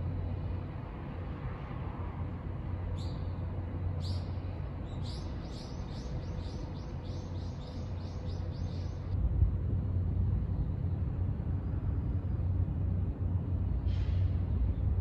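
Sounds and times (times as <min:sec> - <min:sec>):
small bird chirping: 0:04.0 - 0:09.2
low rumble: 0:09.1 - 0:15.0.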